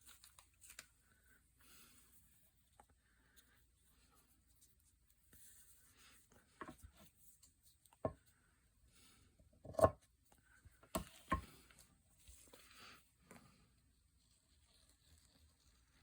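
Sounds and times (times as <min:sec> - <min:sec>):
paper rustling and rubbing: 0:14.0 - 0:16.0.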